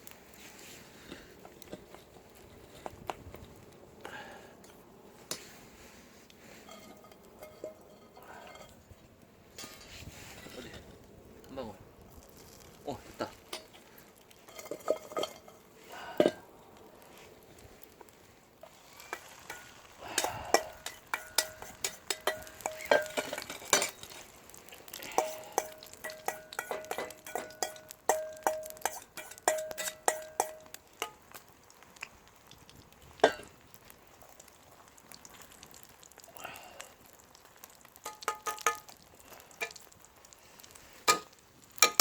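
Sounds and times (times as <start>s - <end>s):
utensil clinking against metal bowl: 19.5s - 24.2s, 25.0s - 31.2s, 38.0s - 38.9s.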